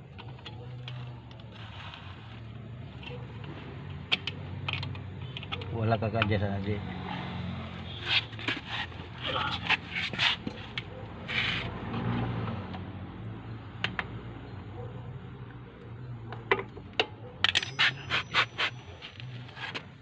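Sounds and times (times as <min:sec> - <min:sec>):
metal tools clinking: 0:17.4 - 0:20.0.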